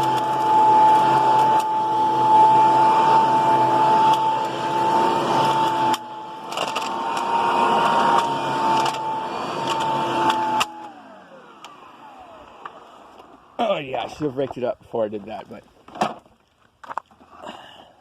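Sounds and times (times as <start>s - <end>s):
vacuum cleaner running: 0.0s - 13.9s.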